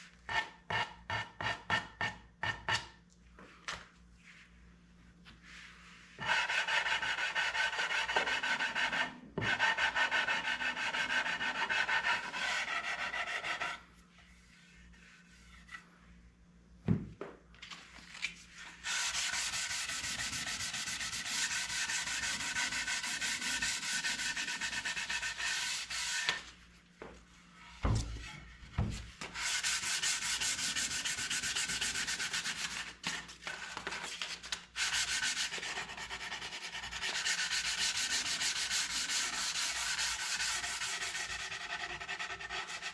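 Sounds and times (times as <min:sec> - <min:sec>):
sandpaper sanding wood: 0:06.2 - 0:13.8, 0:18.8 - 0:26.4, 0:29.4 - 0:33.0, 0:34.8 - 0:42.9.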